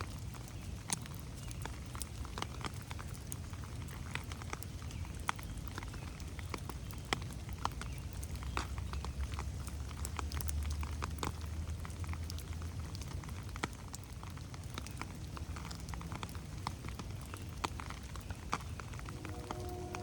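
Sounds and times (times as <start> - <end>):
rain pattering in forest: 0.0 - 20.0
low rumble: 18.9 - 20.0.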